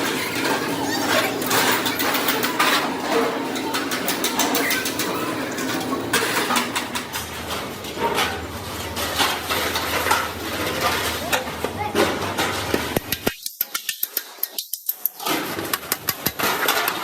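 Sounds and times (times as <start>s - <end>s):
metal knocks and clanks: 0.0s - 13.3s.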